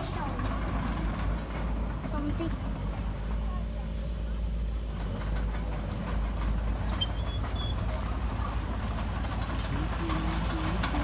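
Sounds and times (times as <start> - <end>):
bulldozer diesel engine running: 0.0 - 11.0
crawler tracks clattering: 4.8 - 11.0.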